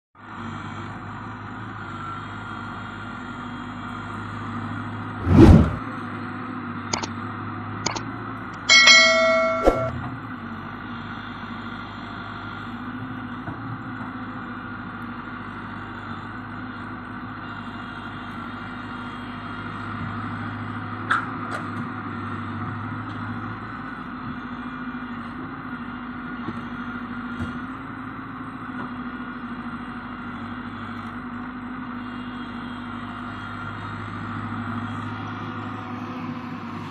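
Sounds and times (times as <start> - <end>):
metallic clang: 8.6 - 10.0
diesel engine running: 10.0 - 36.9.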